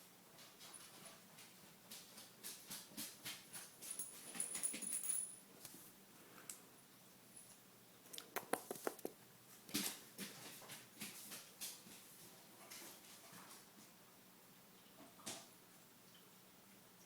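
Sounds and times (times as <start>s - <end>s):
cat paws scampering on floor: 8.1s - 13.9s.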